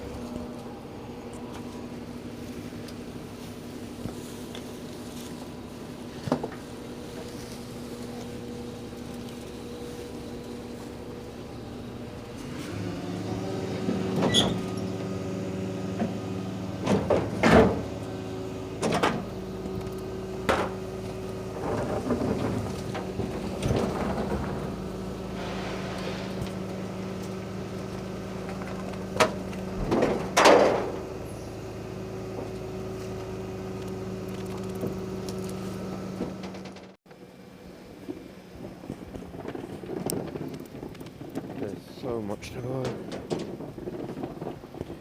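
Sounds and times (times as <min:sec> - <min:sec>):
hydraulics whirring: 0:00.0 - 0:45.0
rubbish truck running: 0:00.0 - 0:45.0
bins knocking and clattering: 0:21.6 - 0:27.2, 0:28.4 - 0:31.0, 0:42.9 - 0:45.0.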